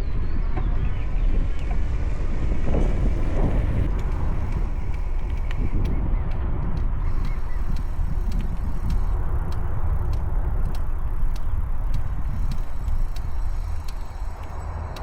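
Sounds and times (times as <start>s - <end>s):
wind buffeting microphone: 0.0s - 15.0s
small ticks: 3.6s - 15.0s.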